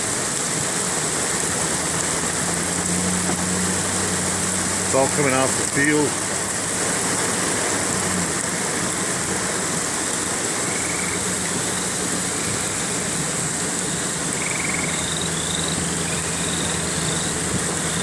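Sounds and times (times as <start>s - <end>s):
rain hissing: 0.0s - 18.0s
vehicle engine idling: 0.1s - 18.0s
short high chirping calls: 14.4s - 17.3s.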